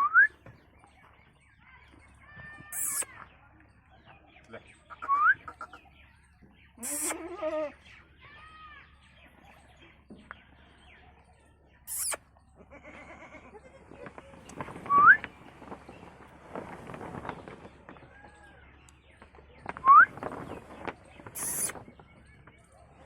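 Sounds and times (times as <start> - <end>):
birds chirping: 0.0 - 23.0
goat bleating: 6.8 - 7.8, 11.9 - 13.8.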